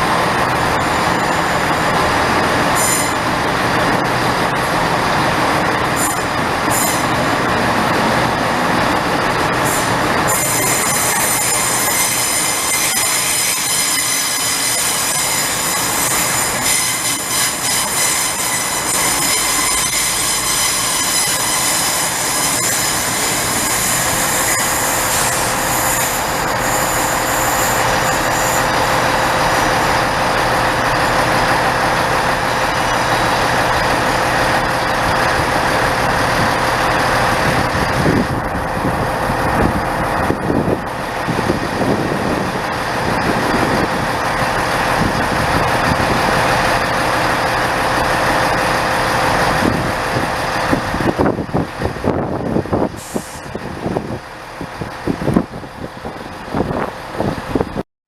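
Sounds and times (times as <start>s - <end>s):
train rumble on rails: 0.0s - 57.8s
train wheels squealing: 2.8s - 3.3s, 6.0s - 7.2s, 9.6s - 29.1s.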